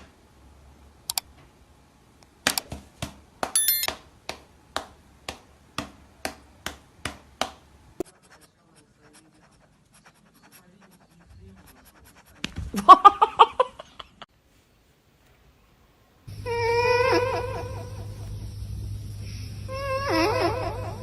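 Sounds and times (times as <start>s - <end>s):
brief ringing tone: 3.6s - 3.9s.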